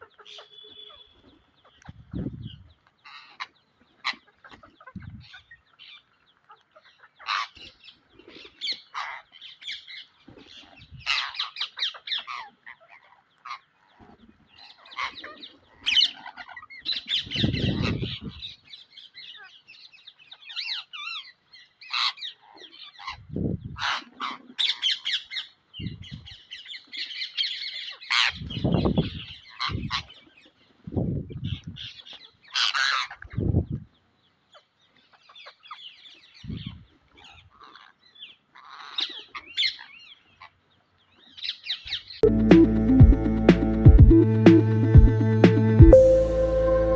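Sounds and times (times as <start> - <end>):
parrot squawking and chirping: 0.0 - 1.8, 35.3 - 40.5
dull low thuds: 42.3 - 46.0.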